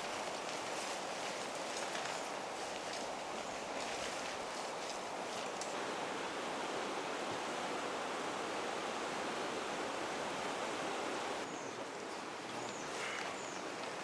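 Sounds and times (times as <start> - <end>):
stream rushing: 2.2 - 12.5.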